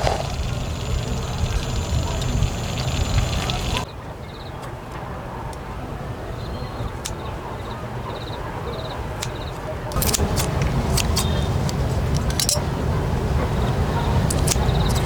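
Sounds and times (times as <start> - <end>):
steady low rumble: 0.0 - 3.8, 10.0 - 15.0
sharp clicks: 9.2 - 12.7.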